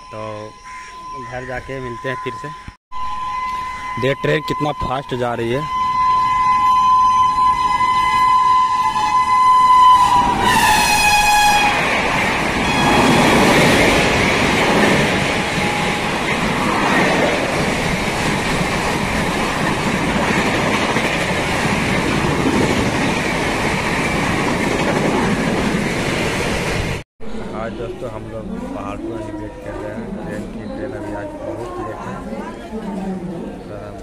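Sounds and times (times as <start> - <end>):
train horn blast: 3.0 - 13.8
train wheels rumbling on rails: 7.3 - 34.0.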